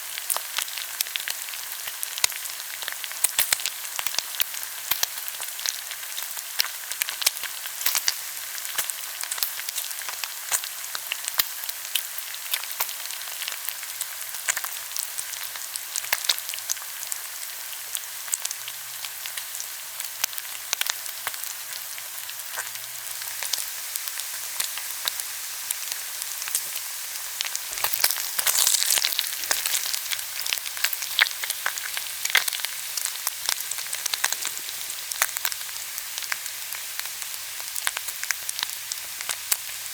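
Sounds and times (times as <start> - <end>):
pork sizzling on grill: 0.0 - 39.9
fat popping and crackling: 27.4 - 35.4.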